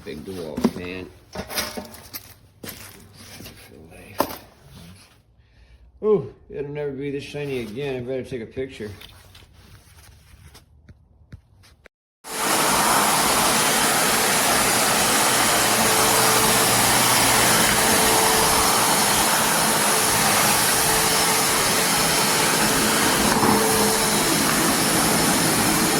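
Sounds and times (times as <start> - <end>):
shop vacuum running: 12.2 - 25.9.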